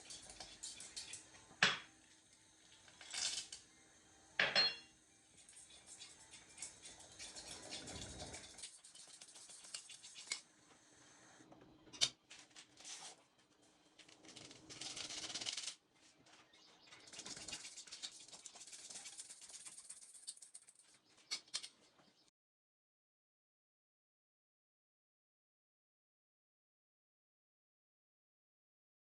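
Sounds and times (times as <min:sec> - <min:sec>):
rustling and scraping of items: 0:05.4 - 0:10.8, 0:11.4 - 0:22.3.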